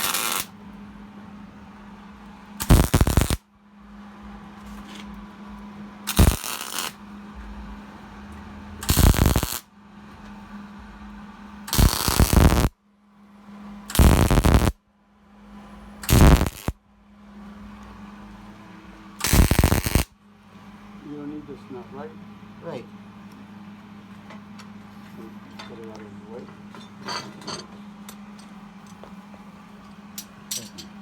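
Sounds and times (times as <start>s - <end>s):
welder crackling: 0.0s - 0.5s, 2.6s - 3.4s, 6.1s - 7.0s, 8.8s - 9.6s, 11.7s - 12.7s, 13.9s - 14.8s, 16.0s - 16.8s, 19.2s - 20.1s
low hum: 0.0s - 21.0s.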